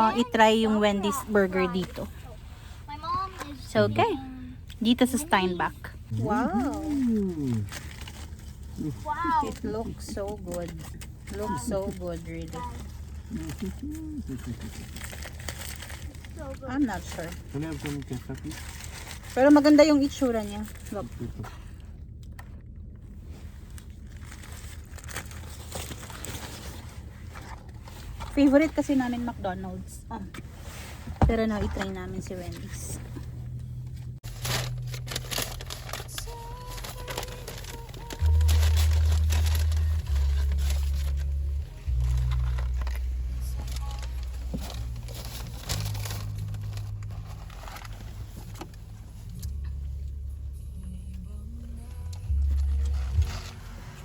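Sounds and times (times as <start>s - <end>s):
low steady hum: 0.0s - 54.0s
paper wrapper crinkling: 6.1s - 21.0s, 23.6s - 28.2s, 34.2s - 49.4s, 52.2s - 54.0s.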